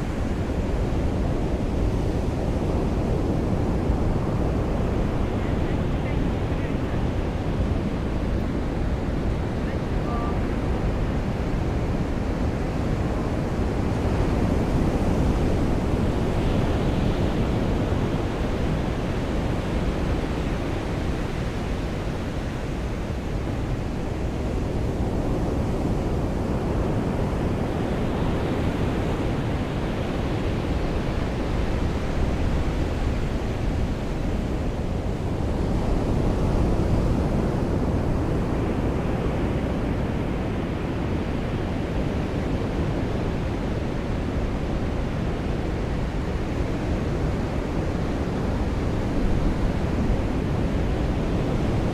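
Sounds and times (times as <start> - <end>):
wind: 0.0 - 51.9.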